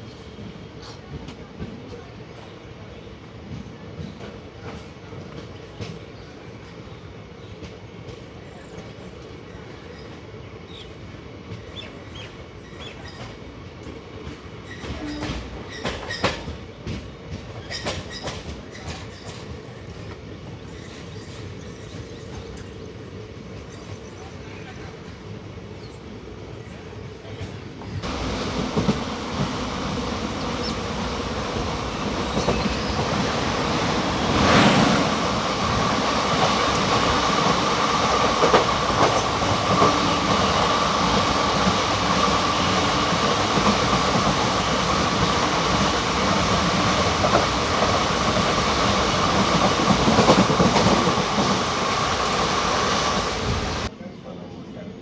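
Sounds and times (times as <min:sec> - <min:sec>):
train passing: 0:27.0 - 0:53.9.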